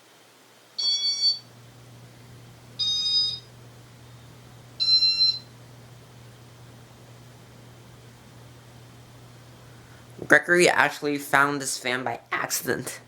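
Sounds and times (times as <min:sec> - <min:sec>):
low steady hum: 0:00.1 - 0:13.0
electronic beeps: 0:00.8 - 0:01.5, 0:02.8 - 0:03.5, 0:04.8 - 0:05.5.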